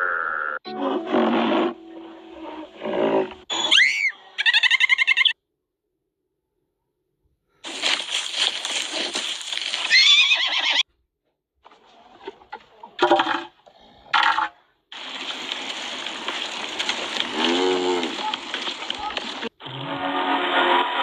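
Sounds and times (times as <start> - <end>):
noisy animal calls: 17.0 - 19.9.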